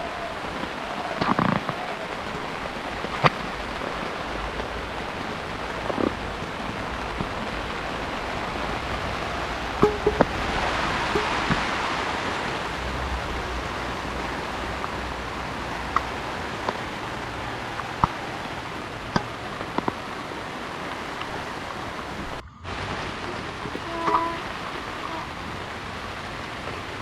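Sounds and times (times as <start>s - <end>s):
heavy rain falling: 0.0s - 27.0s
sharp drip taps: 9.8s - 10.4s.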